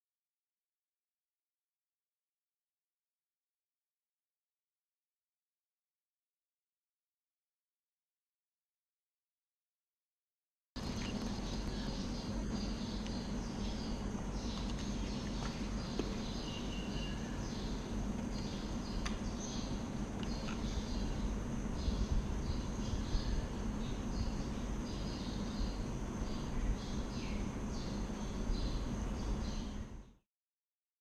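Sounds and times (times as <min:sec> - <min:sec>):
birds chirping: 0:10.8 - 0:30.2
insects chirping: 0:10.8 - 0:30.2
steady low hum: 0:10.8 - 0:30.2.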